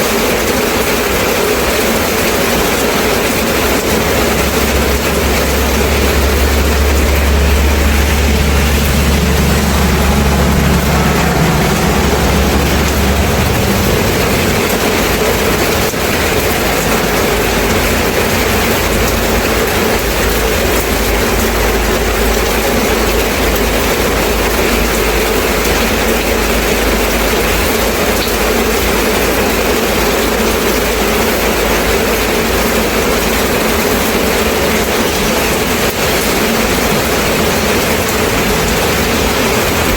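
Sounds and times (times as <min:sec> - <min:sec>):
heavy rain: 0:00.0 - 0:39.9
deep low rumble: 0:02.7 - 0:27.4.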